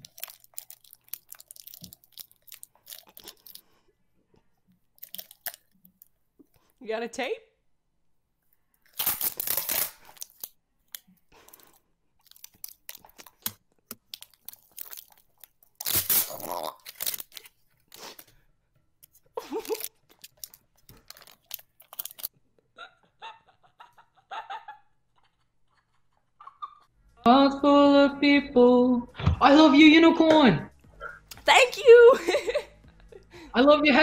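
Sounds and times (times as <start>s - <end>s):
crunching and tearing noises: 0.0s - 3.8s, 5.0s - 5.8s, 8.8s - 18.3s, 19.0s - 22.3s.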